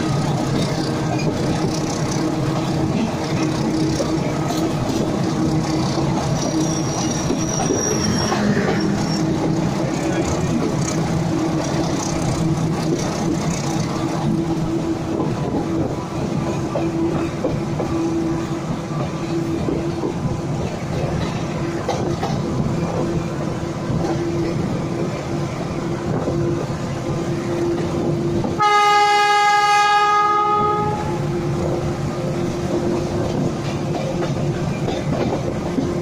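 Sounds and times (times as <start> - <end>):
train running noise and rail rumble: 0.0 - 36.0
loud train horn: 28.5 - 31.6.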